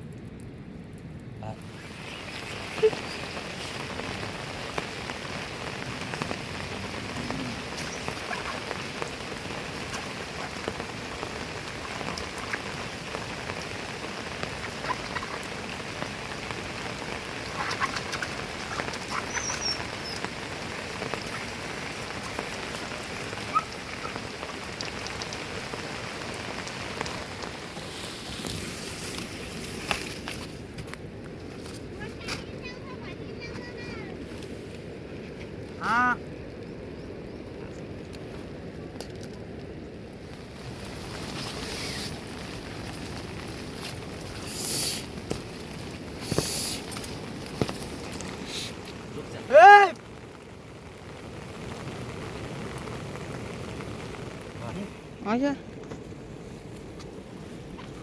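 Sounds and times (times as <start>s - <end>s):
heavy rain falling: 1.2s - 58.0s
sharp drips: 1.6s - 28.0s.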